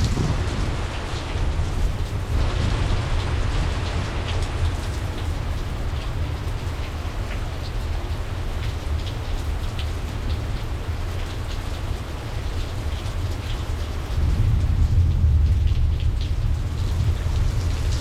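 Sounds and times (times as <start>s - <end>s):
distant thunder rumble: 0.0s - 9.0s, 14.1s - 18.0s
heavy rain: 0.0s - 18.0s
raindrops splashing: 0.0s - 18.0s.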